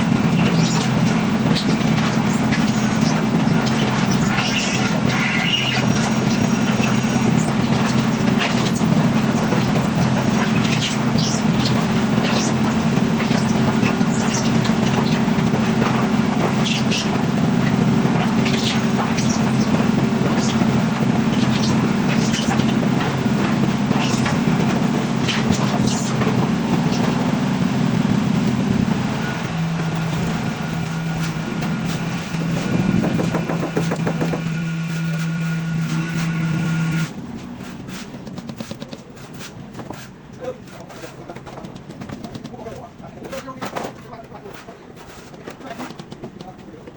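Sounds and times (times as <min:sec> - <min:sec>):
heavy machine droning: 0:00.0 - 0:39.5
short scrapes and clatters: 0:31.0 - 0:46.4.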